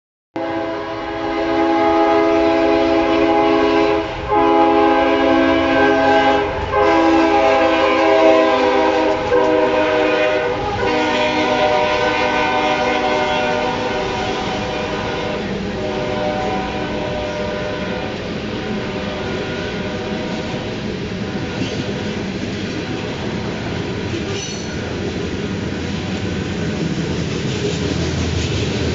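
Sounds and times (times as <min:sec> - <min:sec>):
locomotive air horn blasts: 0:00.4 - 0:22.0, 0:22.8 - 0:24.0
train rumbling: 0:00.4 - 0:28.9.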